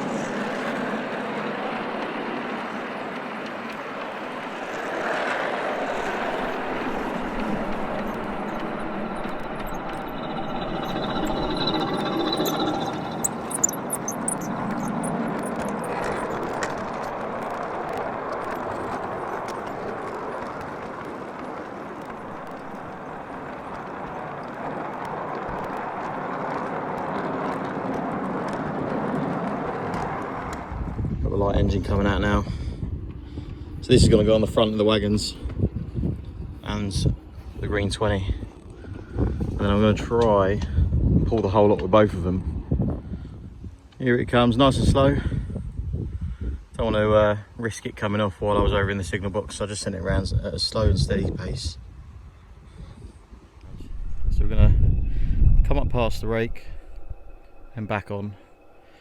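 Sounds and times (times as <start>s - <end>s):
wind on microphone: 0.0s - 47.3s, 48.4s - 59.0s
miniature train rumbling on track: 0.0s - 51.9s.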